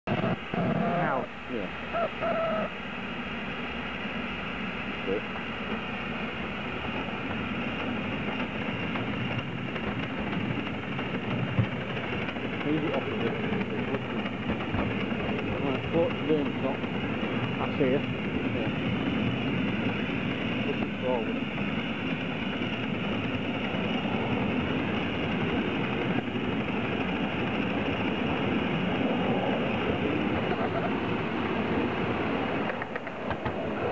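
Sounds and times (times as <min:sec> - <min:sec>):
steam locomotive hiss and rumble: 0:00.1 - 0:33.9.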